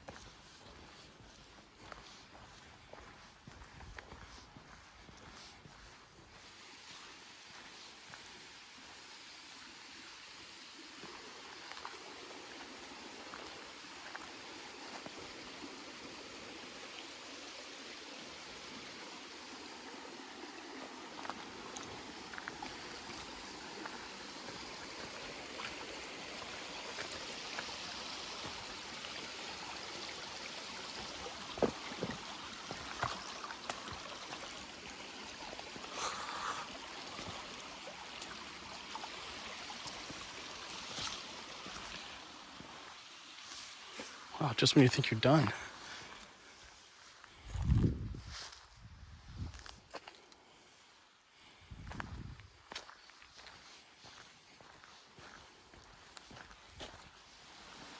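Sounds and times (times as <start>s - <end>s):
stream rushing: 6.4s - 46.6s, 56.4s - 57.9s.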